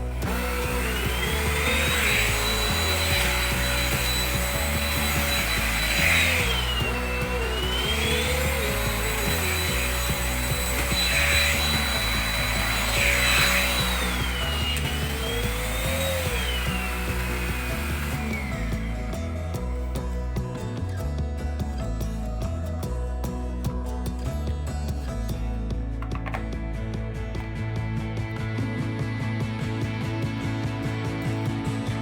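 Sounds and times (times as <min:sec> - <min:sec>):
vacuum cleaner motor whine: 0:00.0 - 0:19.2.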